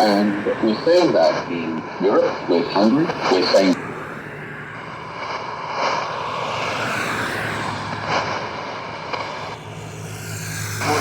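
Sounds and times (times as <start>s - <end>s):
radio static hiss: 0.0s - 6.4s, 7.9s - 9.6s, 10.8s - 11.0s.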